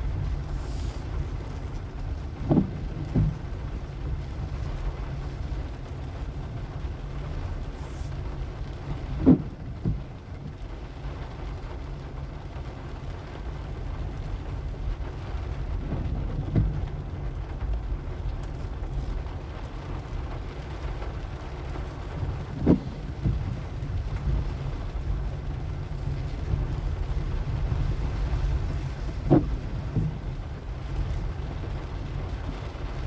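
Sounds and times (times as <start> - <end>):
car engine and tyres rumbling: 0.0 - 33.0
wheels knocking on bumps: 1.9 - 4.2, 9.0 - 10.2, 15.8 - 17.6, 21.7 - 32.9.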